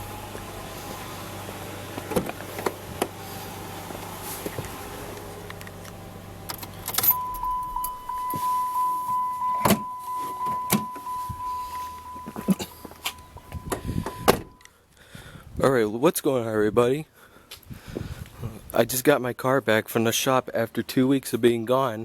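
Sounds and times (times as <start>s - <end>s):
car engine idling: 0.0s - 14.7s
keys jangling: 6.6s - 8.4s
car warning chime: 6.9s - 14.7s.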